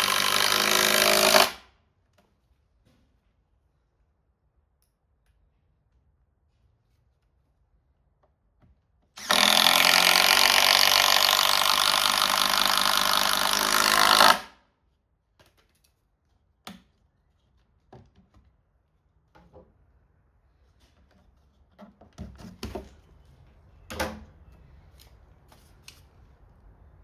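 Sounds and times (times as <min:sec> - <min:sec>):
power drill driving screw into wood: 0:00.0 - 0:01.7, 0:09.2 - 0:14.6.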